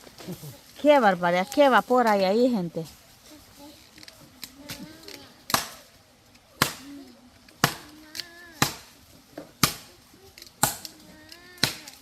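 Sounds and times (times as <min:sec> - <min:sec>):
sharp chopping blows: 0:06.6 - 0:06.9.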